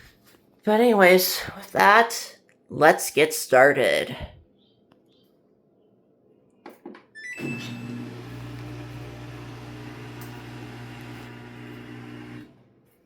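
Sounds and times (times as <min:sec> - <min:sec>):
washing machine humming: 0:07.4 - 0:12.7.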